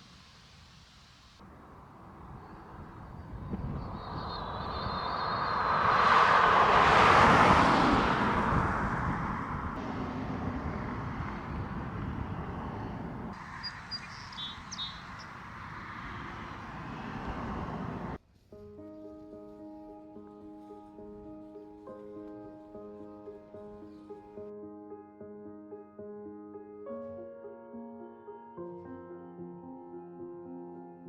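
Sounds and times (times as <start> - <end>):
vehicle passing by: 1.4 - 18.2.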